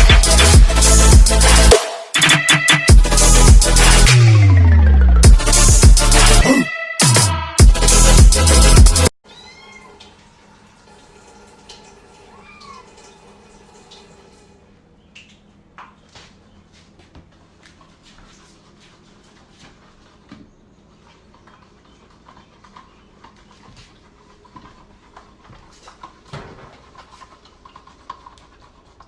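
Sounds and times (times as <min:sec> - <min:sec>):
kittens squeaking: 0:09.3 - 0:10.0, 0:12.3 - 0:13.0
soft taps and rustles: 0:15.2 - 0:21.8.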